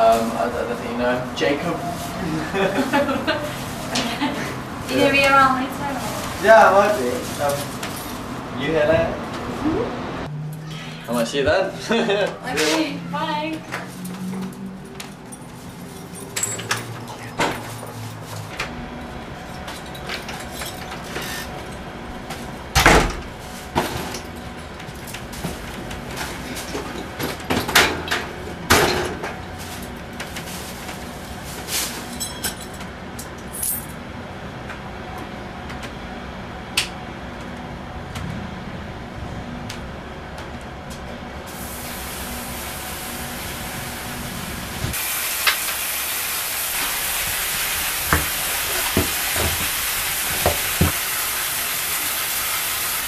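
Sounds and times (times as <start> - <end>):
steady hiss: 41.5 - 53.0.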